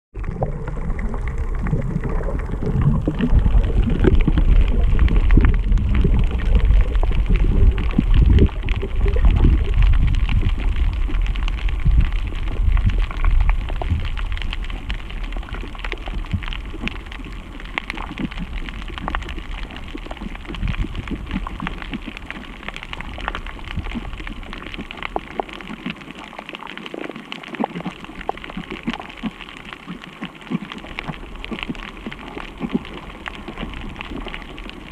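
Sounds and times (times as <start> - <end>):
loud low rumble: 0.2 - 14.1
steady rain patter: 0.2 - 34.9.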